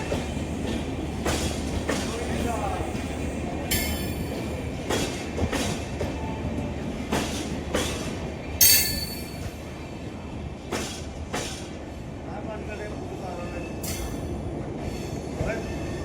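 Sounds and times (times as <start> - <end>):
train wheels clacking over rail joints: 0.0 - 9.7, 10.6 - 11.8
train rolling rumble: 0.0 - 16.0.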